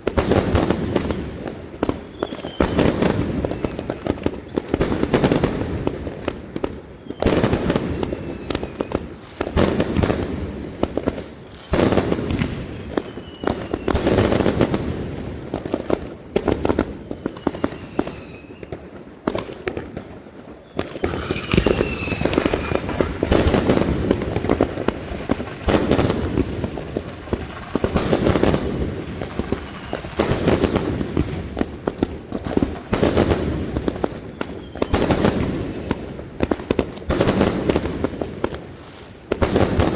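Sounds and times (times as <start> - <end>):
firework bursts crackling: 0.0 - 39.9
falling firework whistles: 0.2 - 5.8, 6.6 - 10.2, 11.6 - 14.8, 16.7 - 31.4, 32.7 - 36.2.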